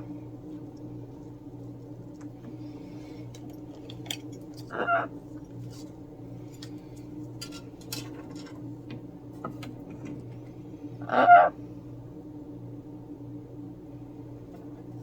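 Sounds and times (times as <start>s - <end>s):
parrot squawking: 4.7s - 5.1s, 11.0s - 11.6s.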